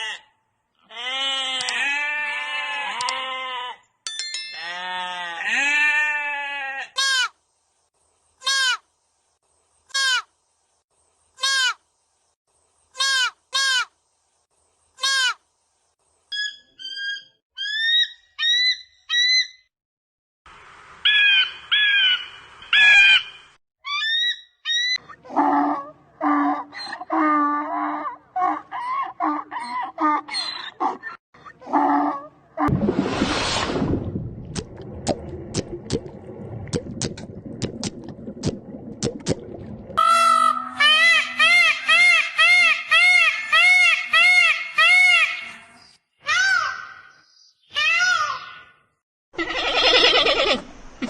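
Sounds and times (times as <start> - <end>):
animal bleating: 0.0 - 3.8, 4.6 - 7.3, 49.4 - 50.6
varied bird calls: 16.3 - 19.7.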